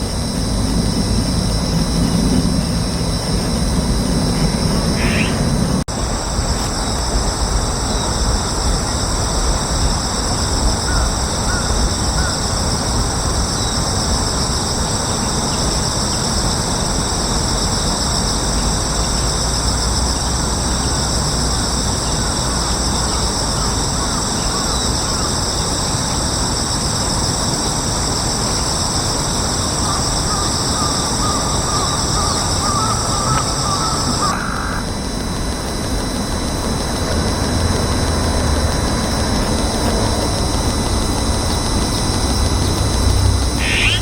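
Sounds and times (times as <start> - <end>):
high insect buzzing: 0.0 - 5.8, 42.5 - 44.0
low distant rumble: 0.0 - 13.6
faint chirp: 1.8 - 5.8, 43.5 - 44.0.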